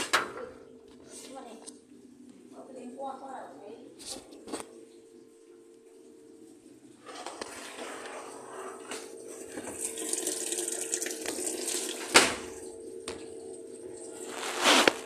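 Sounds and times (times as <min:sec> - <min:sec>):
steady hum: 0:00.0 - 0:15.0
water running: 0:04.2 - 0:15.0.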